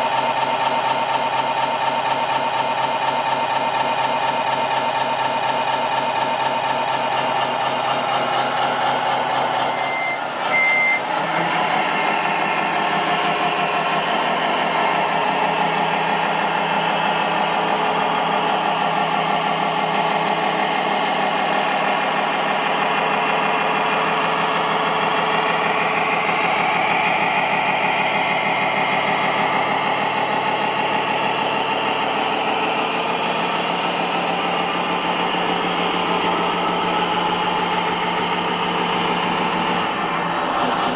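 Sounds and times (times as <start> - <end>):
machine engine drone: 0.0 - 40.9
short high beeps: 9.7 - 11.0.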